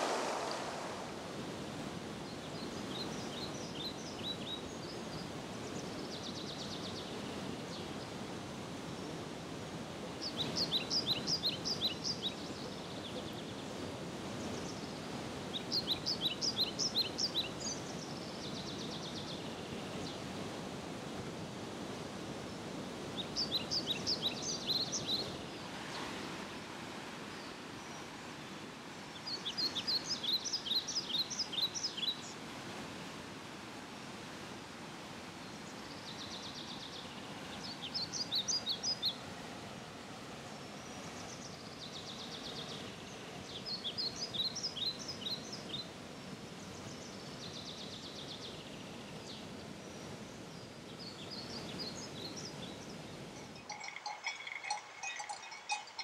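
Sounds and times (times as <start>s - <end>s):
outdoor background noise: 0.0s - 56.0s
songbird singing rapid high notes: 53.5s - 56.0s.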